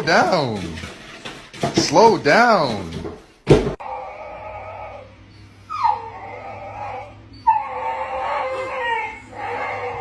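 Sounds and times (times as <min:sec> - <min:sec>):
dog howling: 0:03.8 - 0:10.0.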